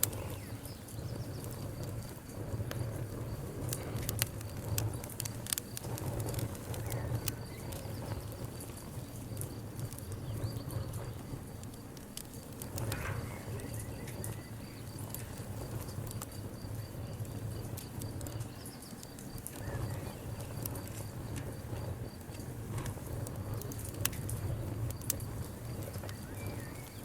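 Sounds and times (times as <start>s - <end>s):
low rumble of burning fire: 0.0s - 27.0s
wood fire crackling and popping: 0.0s - 27.0s.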